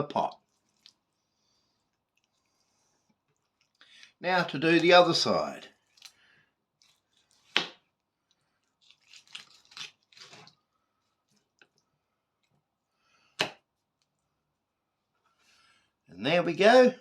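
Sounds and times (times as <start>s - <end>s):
knife cutting raw chicken: 6.8s - 7.8s, 8.8s - 10.6s.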